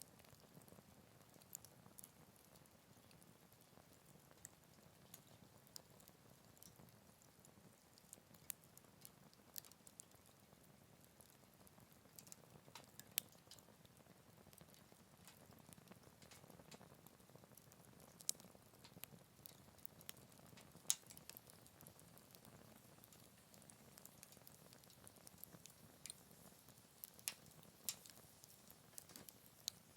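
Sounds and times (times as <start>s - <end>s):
wood fire crackling: 0.0s - 29.9s.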